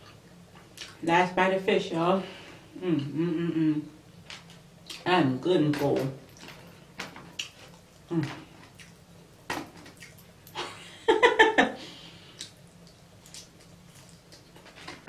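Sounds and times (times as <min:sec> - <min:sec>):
person humming: 0:02.8 - 0:03.9, 0:08.1 - 0:08.4
chewing and mouth noises: 0:07.3 - 0:09.1, 0:09.9 - 0:10.3, 0:12.4 - 0:15.0.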